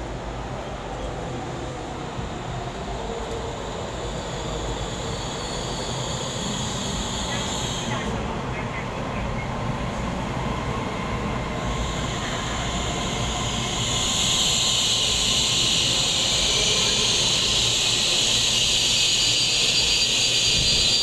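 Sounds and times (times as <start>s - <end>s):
electric train slowing to a stop: 0.0s - 21.0s
loud high hiss: 11.4s - 21.0s.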